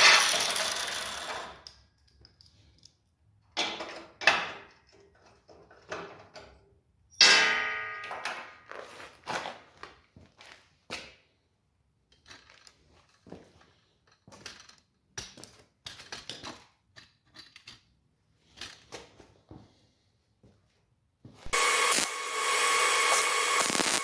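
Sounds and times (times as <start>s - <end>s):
angle grinder whining: 21.5s - 24.0s.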